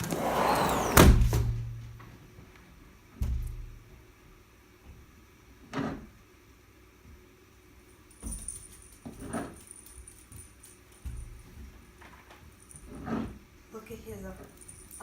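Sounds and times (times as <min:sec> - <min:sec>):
snow shovel scraping snow: 0:00.0 - 0:01.0
light metallic jingling: 0:07.9 - 0:11.6, 0:14.3 - 0:15.0.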